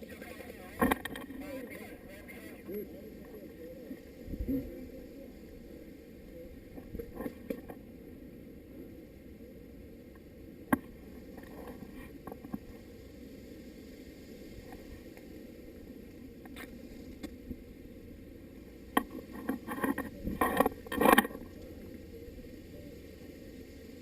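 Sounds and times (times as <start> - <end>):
low background noise: 0.0 - 24.0
rustling scraping and knocking: 19.0 - 21.5.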